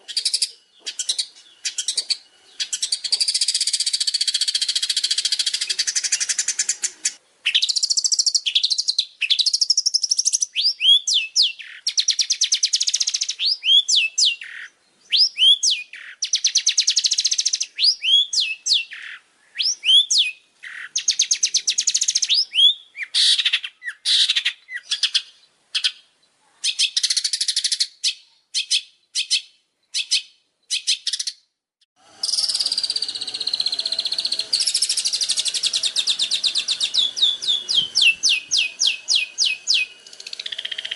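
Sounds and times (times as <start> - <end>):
faint low background noise: 0.0 - 30.9
songbird singing trills and whistles: 0.0 - 31.5, 32.2 - 40.9.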